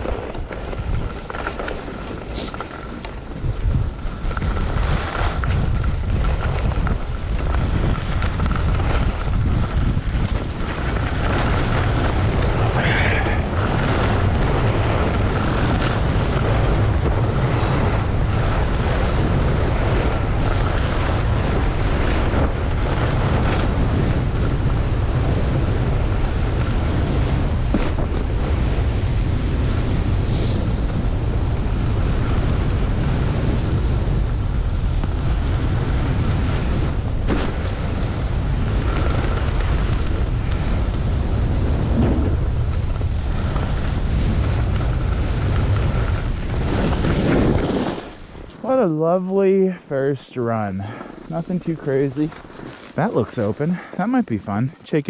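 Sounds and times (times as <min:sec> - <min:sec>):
wind rushing over microphone: 0:00.0 - 0:55.0
skis hissing through snow: 0:01.0 - 0:03.1, 0:30.1 - 0:30.8, 0:45.2 - 0:48.9, 0:50.4 - 0:54.6.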